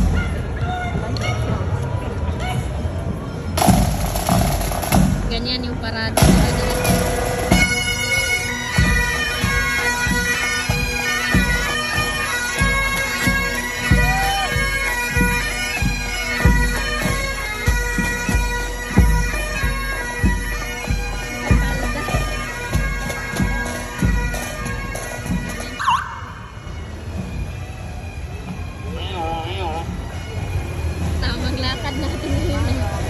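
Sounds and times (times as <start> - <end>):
regular drum beat: 3.6 - 10.2, 12.6 - 25.7.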